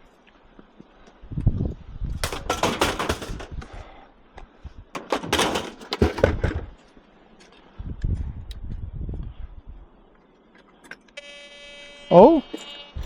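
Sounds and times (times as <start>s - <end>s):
scrap metal clattering: 2.2s - 4.0s, 5.0s - 6.8s
dull thuds: 5.0s - 6.8s.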